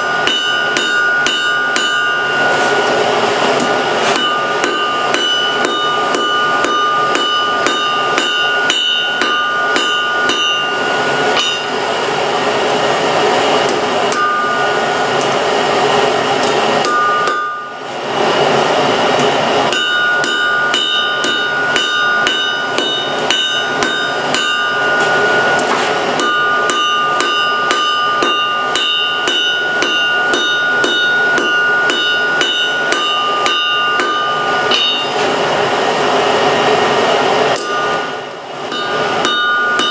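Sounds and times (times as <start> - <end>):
hammer ringing on anvil: 0.0 - 11.9, 13.6 - 15.4, 16.4 - 17.9, 19.7 - 35.3, 37.5 - 39.9.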